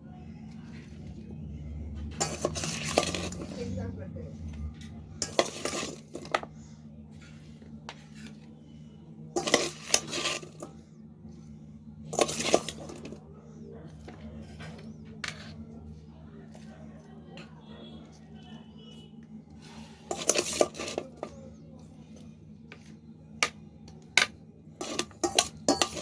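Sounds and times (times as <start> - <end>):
steady low hum: 0.0 - 26.0
utensil scraping a dish: 2.1 - 3.8, 5.2 - 10.8, 12.1 - 13.2, 14.0 - 15.8, 19.5 - 21.5, 24.8 - 26.0.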